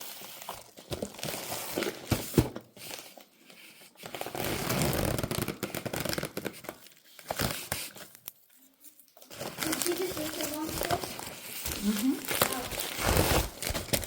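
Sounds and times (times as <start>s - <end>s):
wrapping crinkling: 0.0s - 14.0s.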